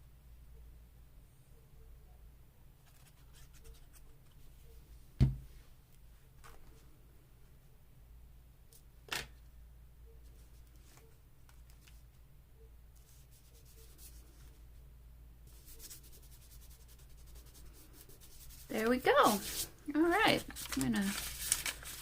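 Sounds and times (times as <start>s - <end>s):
paper rustling: 18.7s - 22.0s.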